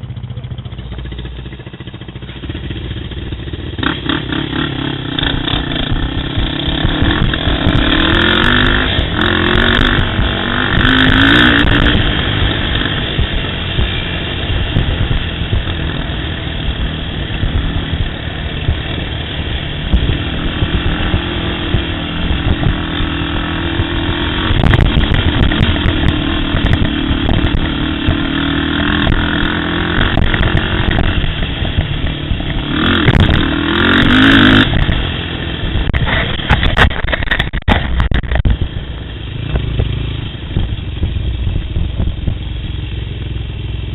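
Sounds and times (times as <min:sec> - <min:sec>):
atv engine running: 0:00.0 - 0:43.9
knocks and rattles: 0:35.9 - 0:38.7.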